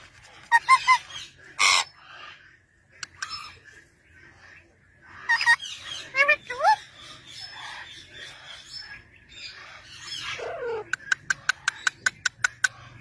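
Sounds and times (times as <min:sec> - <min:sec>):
parrot squawking: 0:00.5 - 0:02.4, 0:05.2 - 0:07.9, 0:09.5 - 0:13.0.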